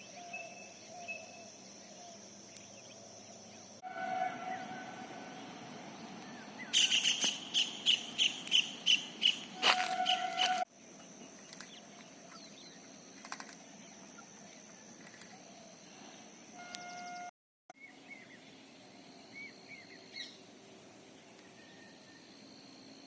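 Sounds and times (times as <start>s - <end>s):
high thin insect drone: 0.0s - 17.1s
bird chirps: 0.1s - 10.6s.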